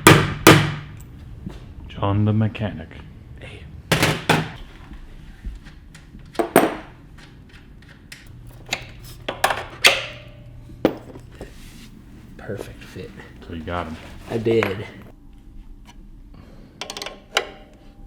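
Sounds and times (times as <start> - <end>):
metal tools knocking and clanking: 14.5 - 15.1.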